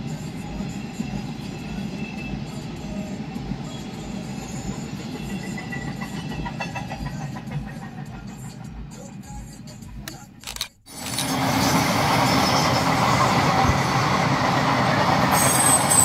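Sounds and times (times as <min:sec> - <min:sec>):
train rumbling past: 0:00.0 - 0:08.9, 0:11.1 - 0:16.0
sharp clicks of train wheels: 0:05.2 - 0:08.7, 0:10.0 - 0:16.0.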